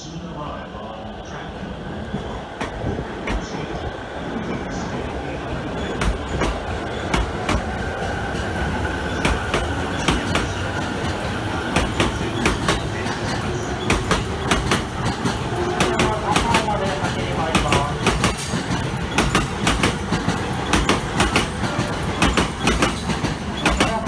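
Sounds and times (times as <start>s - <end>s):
electric train rumble and whine: 0.0s - 24.0s
wheel clicks over rail joints: 5.7s - 24.0s.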